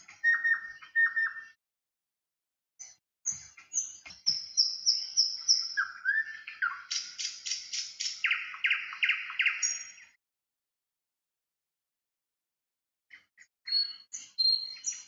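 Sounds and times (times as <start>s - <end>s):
bird singing whistled notes: 0.0s - 1.6s, 2.8s - 10.2s, 13.7s - 15.0s.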